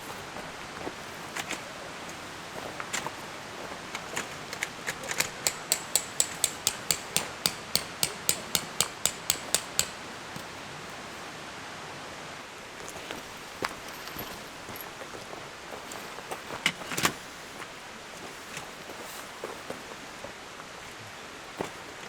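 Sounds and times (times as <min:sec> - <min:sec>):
outdoor hiss: 0:00.0 - 0:22.0
hammer striking: 0:05.2 - 0:10.1
scattered knocks: 0:05.3 - 0:10.0.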